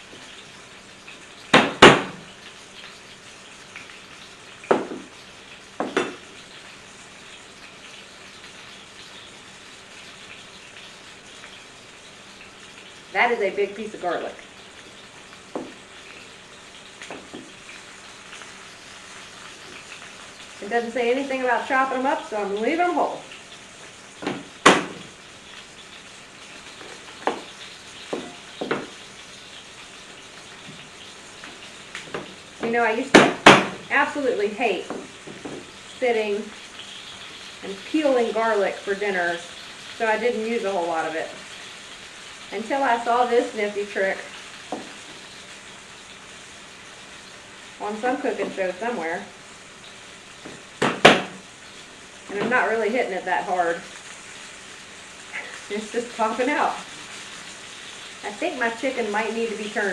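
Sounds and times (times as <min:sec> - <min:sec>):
chicken sizzling in oil: 0:00.0 - 0:59.9
knife knocking on cutting board: 0:01.6 - 0:02.2, 0:04.7 - 0:05.1, 0:05.8 - 0:06.2, 0:15.6 - 0:15.8, 0:24.2 - 0:25.1, 0:27.2 - 0:27.5, 0:28.1 - 0:28.9, 0:32.1 - 0:33.9, 0:50.5 - 0:51.4.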